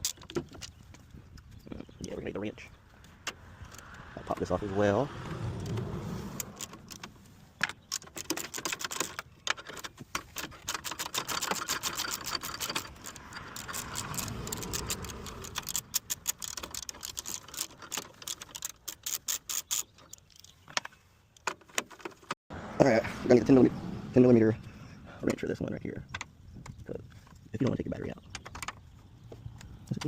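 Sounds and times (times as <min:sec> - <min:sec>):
ratchet wrench clicking: 0:10.6 - 0:20.4.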